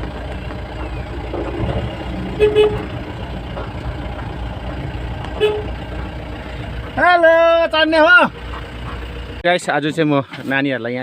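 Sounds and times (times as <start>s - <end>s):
vehicle engine running: 0.0s - 11.0s
short horn toot: 2.4s - 2.9s, 5.4s - 5.7s.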